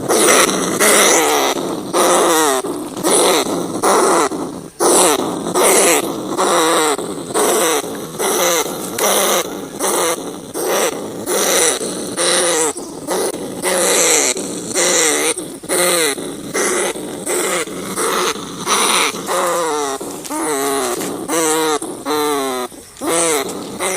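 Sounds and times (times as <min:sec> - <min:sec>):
rats calling: 0:00.0 - 0:23.9.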